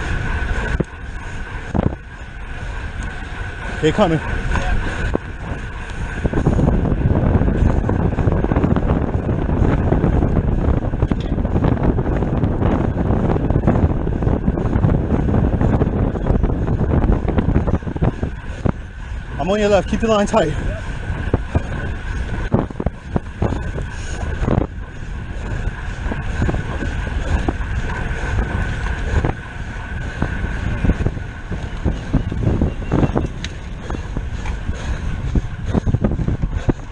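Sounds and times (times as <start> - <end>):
bicycle high whir: 0.0 - 36.9
wind buffeting microphone: 0.0 - 36.9
bike clicks: 20.0 - 36.9.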